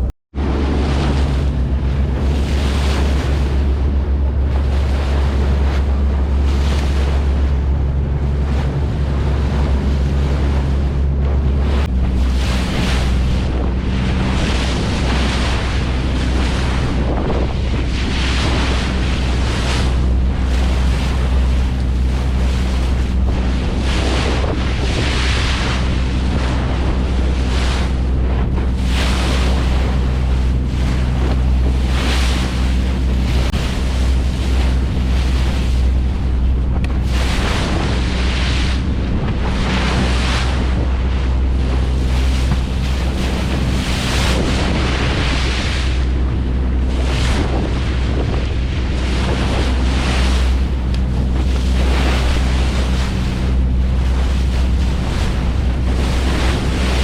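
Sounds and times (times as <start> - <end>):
boat engine humming: 0.0 - 57.0
wind buffeting microphone: 0.0 - 57.0.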